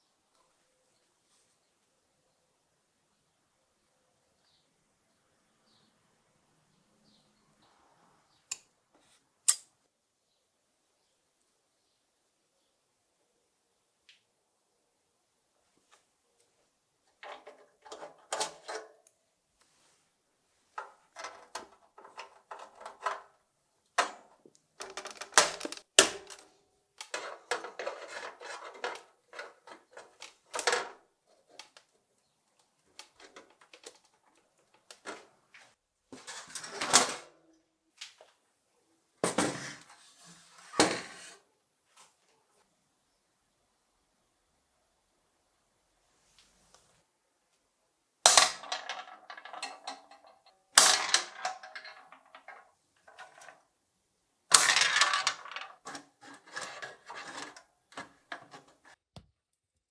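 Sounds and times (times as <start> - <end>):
table soccer game clattering: 24.0 - 26.4, 27.1 - 31.0, 48.3 - 53.6, 54.5 - 59.0.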